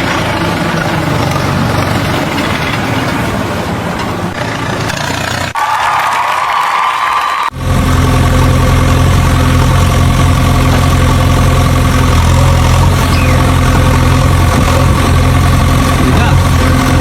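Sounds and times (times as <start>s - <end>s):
engine idling: 7.5s - 17.0s.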